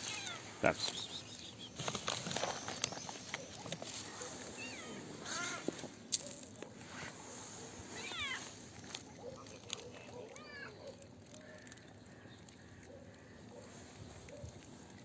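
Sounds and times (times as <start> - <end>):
cats meowing: 0.0 - 0.8, 4.1 - 5.8, 7.8 - 8.6.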